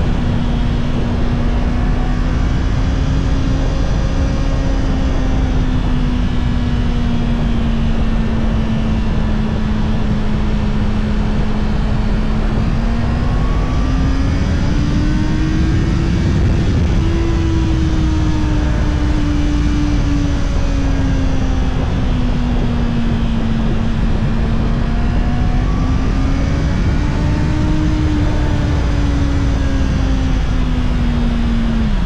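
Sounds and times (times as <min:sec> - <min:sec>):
motorcycle engine cruising: 0:00.0 - 0:32.0
wind noise: 0:00.0 - 0:32.0.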